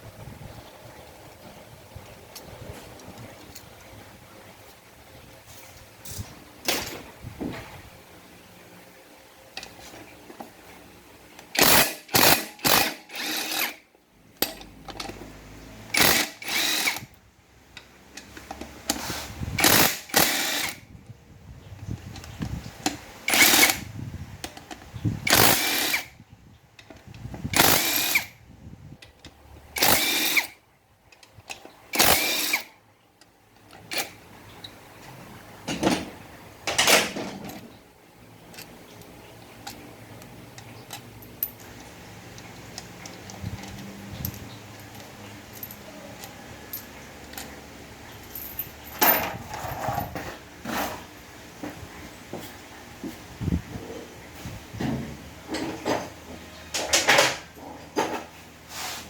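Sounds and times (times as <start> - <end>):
power tool bursts: 11.5 - 13.8, 15.9 - 17.1, 19.0 - 20.8, 23.3 - 23.9, 25.3 - 26.1, 27.5 - 28.3, 29.8 - 30.6, 31.9 - 32.7.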